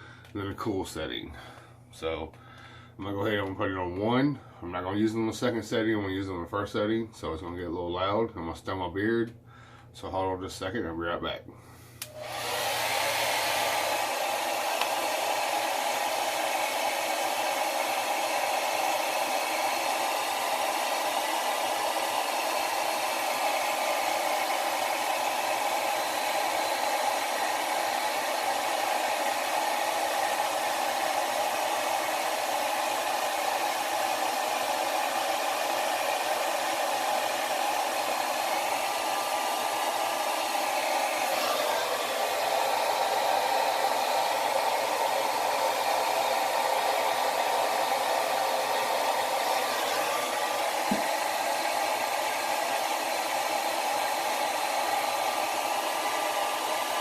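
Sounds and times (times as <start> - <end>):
blow dryer running: 12.0 - 57.0.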